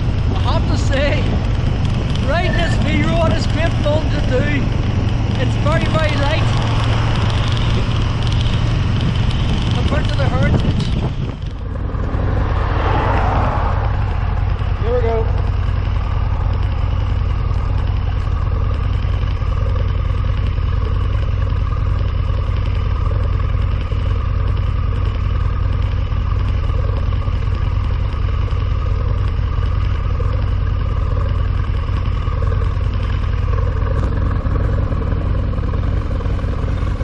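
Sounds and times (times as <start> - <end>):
wind rumble on microphone: 0.0 - 15.5
motorcycle engine running: 0.0 - 37.0.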